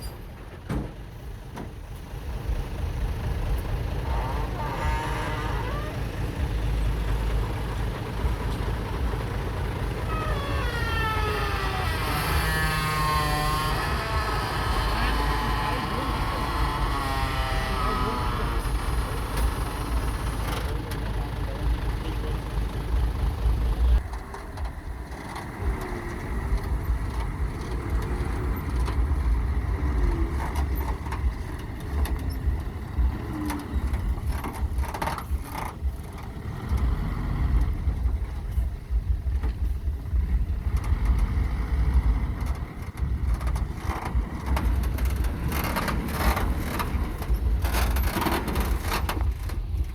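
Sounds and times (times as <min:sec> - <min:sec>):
construction machinery engine rumble: 0:00.0 - 0:49.9
knocks and clatter: 0:24.0 - 0:49.9.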